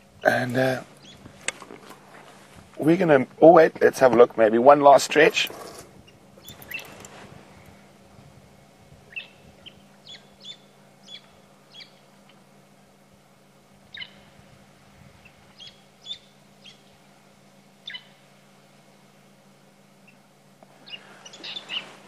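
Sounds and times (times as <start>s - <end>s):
faint low hum: 0.0s - 22.0s
bird chirping: 1.0s - 1.3s, 6.0s - 7.0s, 9.1s - 12.1s, 13.9s - 14.3s, 15.2s - 17.0s, 17.8s - 18.2s, 20.0s - 22.0s.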